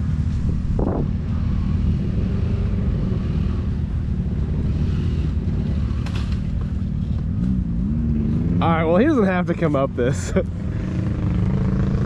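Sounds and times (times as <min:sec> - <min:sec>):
dirt bike engine running: 0:00.0 - 0:09.2.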